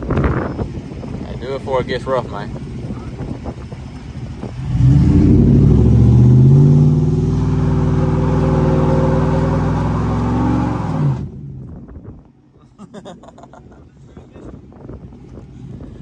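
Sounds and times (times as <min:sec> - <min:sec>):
pickup engine accelerating hard: 0:02.4 - 0:11.8.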